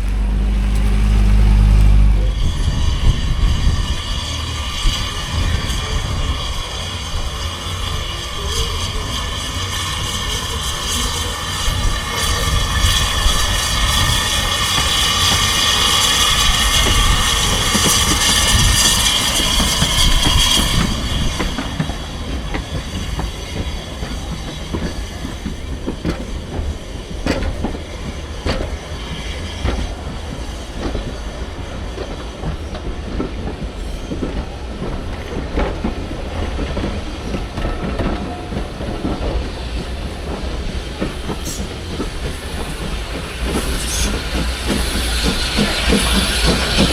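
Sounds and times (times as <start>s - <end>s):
train rumble: 0.0s - 46.9s
loud high wheel squeal: 0.2s - 27.1s.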